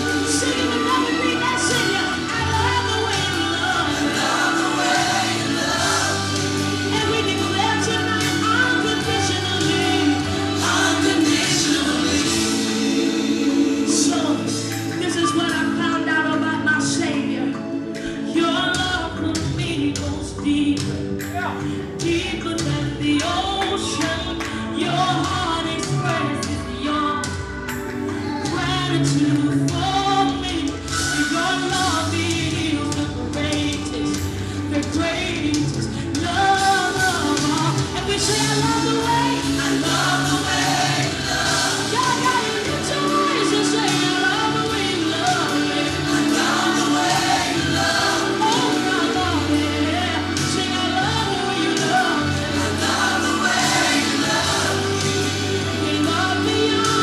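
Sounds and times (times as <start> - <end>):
choir voices singing: 0.0 - 15.7, 33.7 - 57.0
band playing gospel music: 0.0 - 57.0
held keyboard chords: 0.0 - 57.0
person singing: 0.0 - 57.0.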